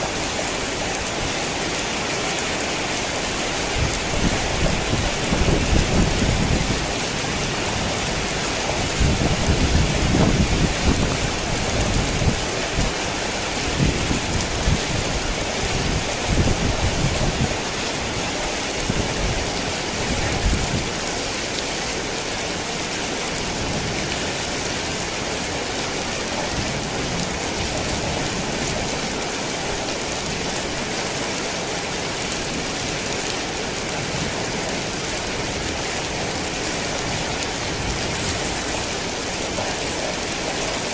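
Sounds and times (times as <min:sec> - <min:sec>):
heavy rain falling: 0:00.0 - 0:40.9
thunder rumbling: 0:03.6 - 0:12.9.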